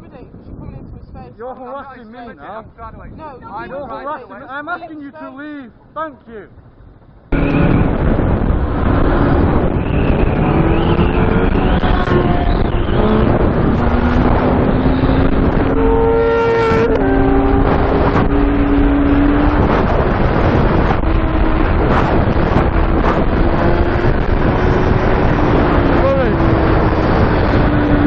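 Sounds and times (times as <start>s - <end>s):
wind on microphone: 0.0s - 1.4s, 2.4s - 3.9s, 7.3s - 28.0s
motorcycle engine running: 5.8s - 28.0s.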